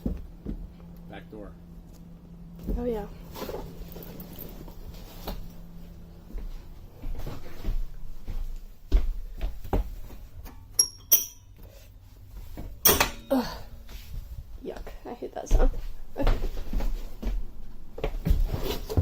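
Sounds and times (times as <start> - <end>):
sharp metallic clinks: 10.8 - 11.6.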